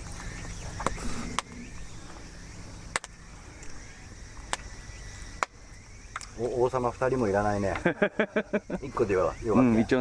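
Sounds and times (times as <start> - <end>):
outdoor background noise: 0.0 - 10.0
sharp clicks: 2.9 - 3.7.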